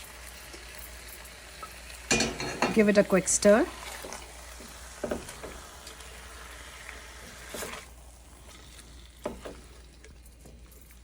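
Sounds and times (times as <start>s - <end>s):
chicken sizzling in a pan: 0.0s - 11.0s
utensil knocking against pan: 2.1s - 2.8s.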